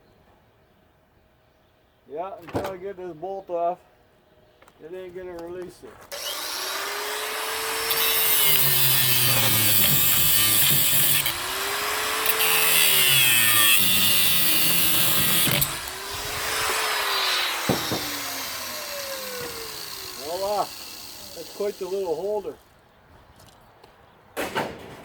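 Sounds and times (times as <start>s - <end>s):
angle grinder cutting metal: 6.1s - 22.4s.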